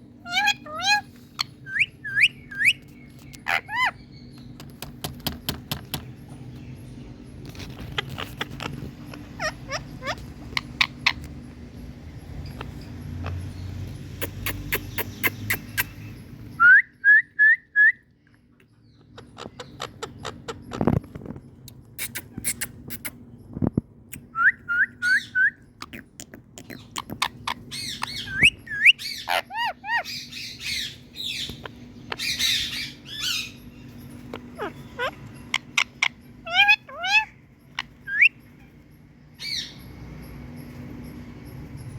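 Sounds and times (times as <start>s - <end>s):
parrot squawking and chattering: 0.0s - 4.6s, 7.3s - 11.6s, 12.3s - 16.4s, 19.0s - 20.8s, 21.7s - 23.3s, 25.0s - 39.9s.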